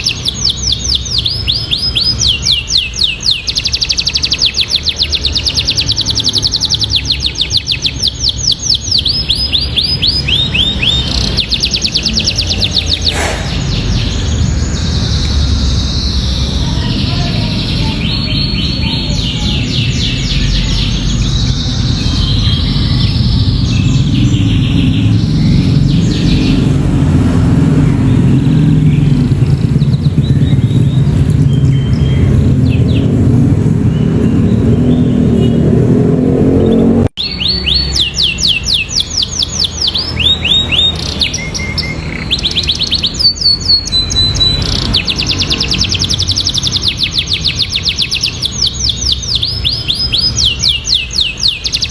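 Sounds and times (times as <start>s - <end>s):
canary singing trills: 0.0s - 51.9s.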